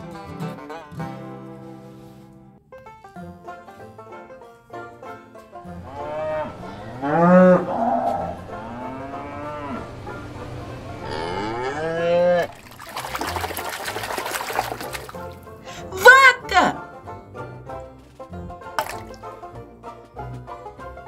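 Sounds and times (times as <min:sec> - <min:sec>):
deep drawn-out animal calls: 0:05.7 - 0:12.6.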